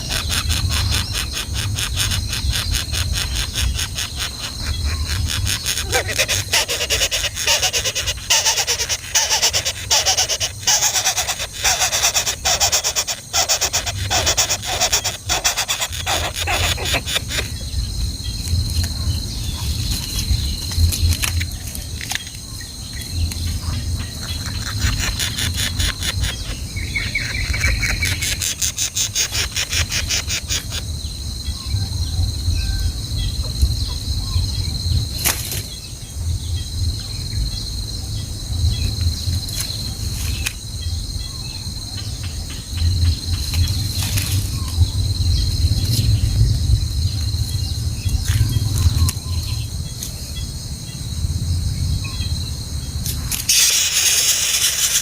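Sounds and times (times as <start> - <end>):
baby birds cheeping: 0.0 - 21.4, 22.5 - 31.7, 53.5 - 55.0
insects buzzing: 0.0 - 55.0.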